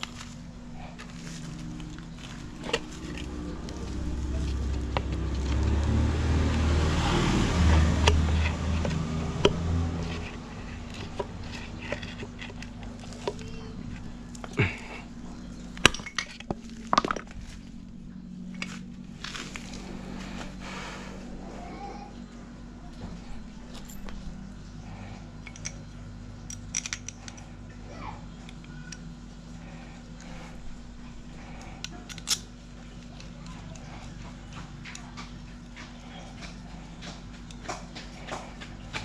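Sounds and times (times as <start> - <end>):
low rumble: 0.0 - 25.2
steady low hum: 0.0 - 39.0.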